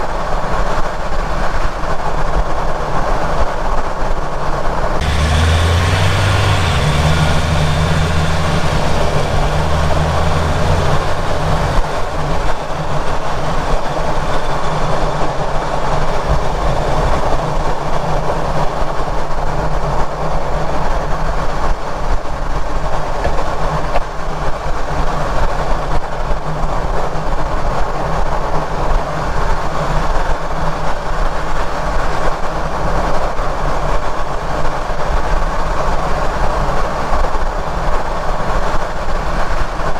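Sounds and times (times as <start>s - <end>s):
tyre and driveline rumble: 5.0s - 14.8s
low hum: 5.0s - 15.3s.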